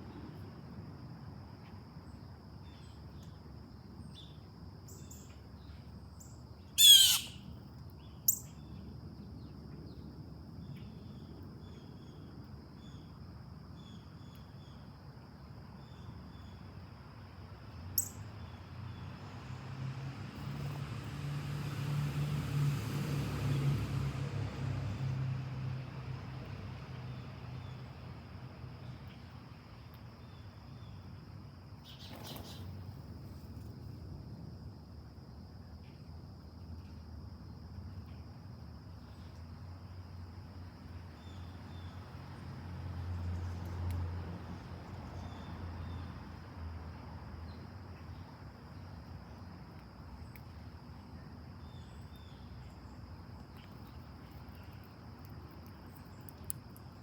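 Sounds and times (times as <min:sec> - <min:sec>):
vehicle passing: 0:19.1 - 0:27.6
faint bird chirps: 0:31.8 - 0:32.7
high insect drone: 0:47.5 - 0:57.0.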